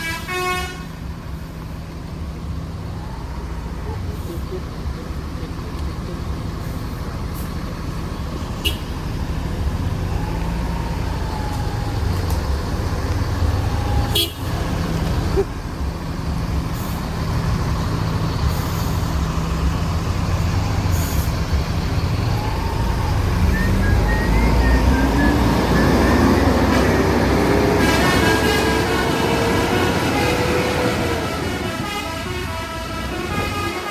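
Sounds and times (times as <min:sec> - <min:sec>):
vehicle horn toots: 0:00.0 - 0:00.9, 0:14.1 - 0:14.5, 0:31.5 - 0:33.9
bus engine running: 0:00.0 - 0:33.9
road noise: 0:00.0 - 0:33.9.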